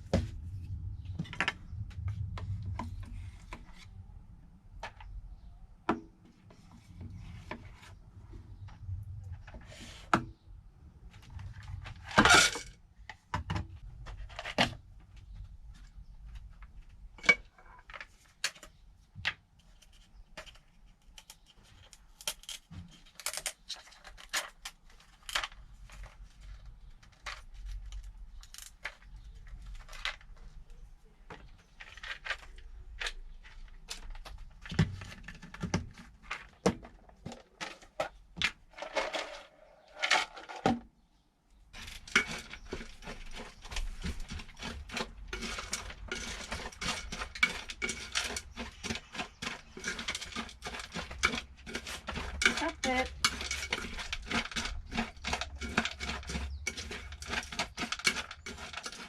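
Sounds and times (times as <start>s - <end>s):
household objects clicking and clinking: 41.7s - 59.0s.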